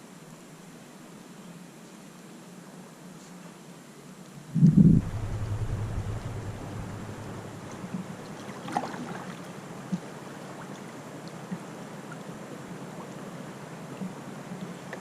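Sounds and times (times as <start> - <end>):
river water rushing: 4.6 - 14.5.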